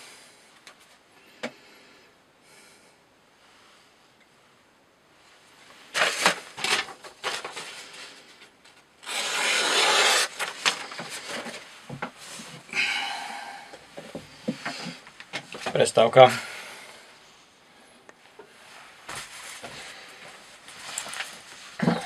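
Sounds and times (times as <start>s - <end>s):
knife cutting rope: 9.0s - 10.9s.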